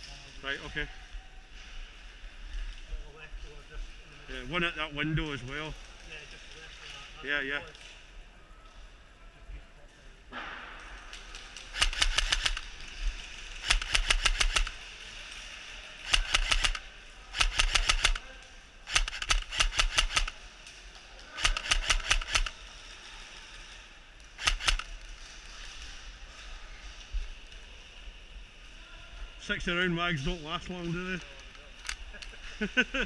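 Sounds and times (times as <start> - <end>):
airsoft gun firing bursts: 11.6 - 14.9, 16.0 - 20.5, 21.3 - 22.6, 24.4 - 25.0.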